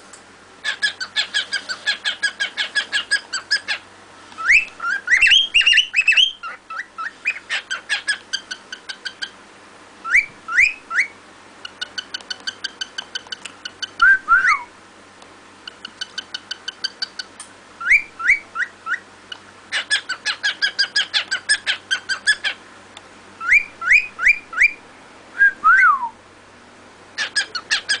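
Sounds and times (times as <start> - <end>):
cockatiel whistling: 4.4 - 9.3, 10.0 - 11.2, 13.7 - 14.7, 16.6 - 19.0, 23.4 - 24.8, 27.2 - 28.0.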